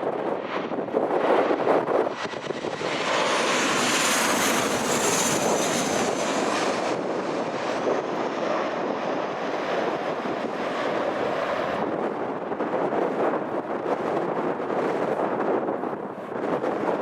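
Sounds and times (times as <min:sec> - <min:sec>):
aircraft engines passing: 0:00.0 - 0:17.0
wind buffeting microphone: 0:00.0 - 0:17.0.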